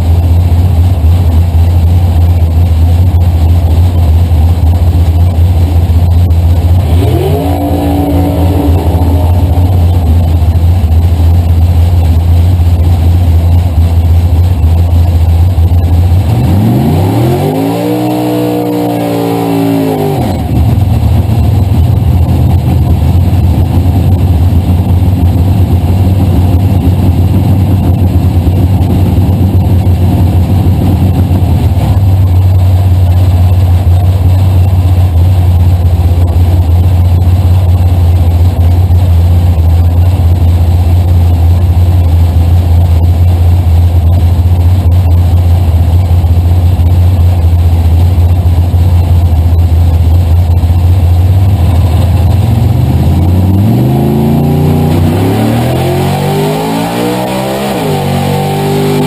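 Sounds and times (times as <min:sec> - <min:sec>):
car engine idling loudly: 0:00.0 - 0:59.0
engine revving: 0:03.3 - 0:14.6, 0:15.3 - 0:34.7, 0:50.2 - 0:59.0.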